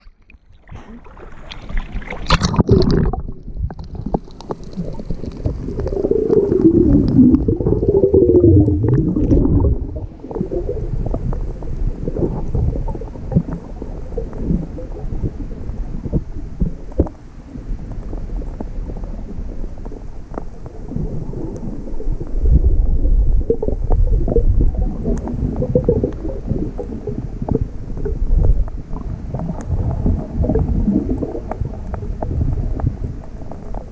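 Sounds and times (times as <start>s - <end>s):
small clicks and crackles: 0.0s - 7.8s, 11.0s - 33.9s
splash: 0.0s - 7.9s
underwater rumbling water: 0.0s - 33.9s.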